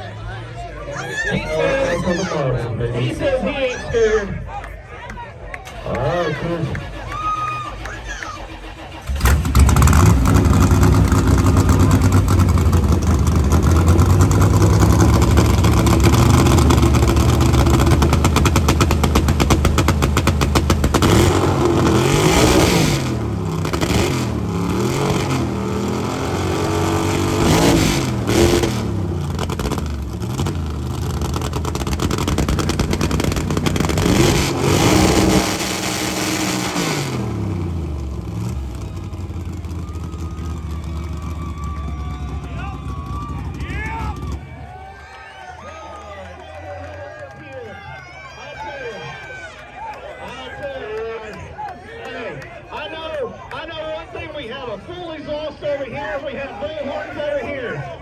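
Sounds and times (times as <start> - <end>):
car engine revving loudly: 5.9 - 41.5.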